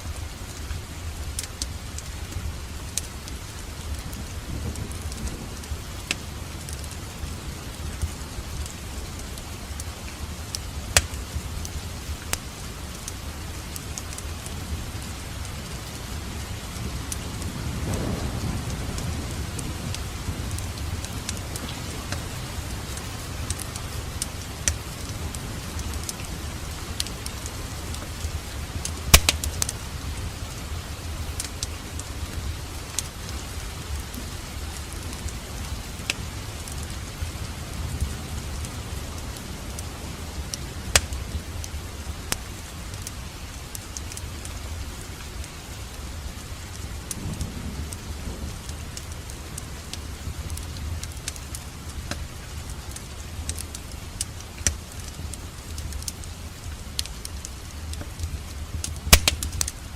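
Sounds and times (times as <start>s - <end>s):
wood fire crackling: 0.0s - 59.9s
fire popping: 8.0s - 13.2s, 27.0s - 30.4s, 40.4s - 41.7s, 49.9s - 59.9s.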